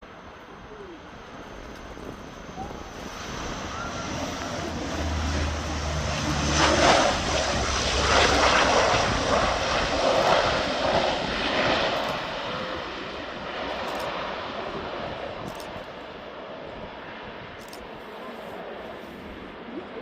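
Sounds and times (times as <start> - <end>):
turboprop plane passing: 0.1 - 20.0.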